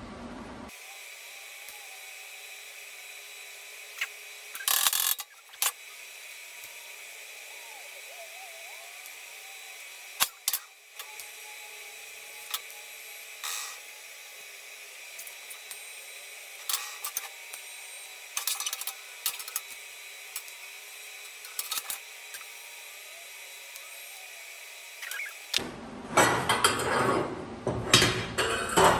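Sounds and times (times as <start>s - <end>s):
tools and metal parts clicking: 4.6s - 5.8s, 10.2s - 11.3s, 16.6s - 17.3s, 18.4s - 19.8s, 21.3s - 22.5s.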